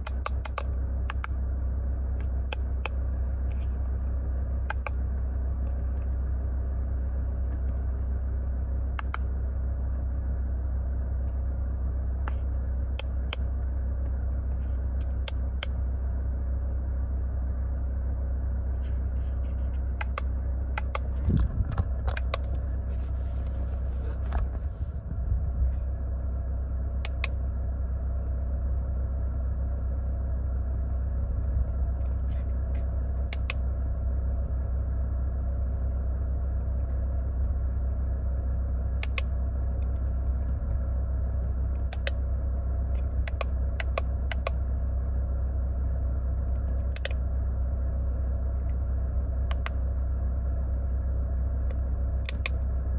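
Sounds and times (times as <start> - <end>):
car engine idling: 0.0 - 52.9
light clicks: 39.0 - 40.0, 43.0 - 44.6, 46.9 - 47.2, 49.5 - 49.8, 51.7 - 52.6.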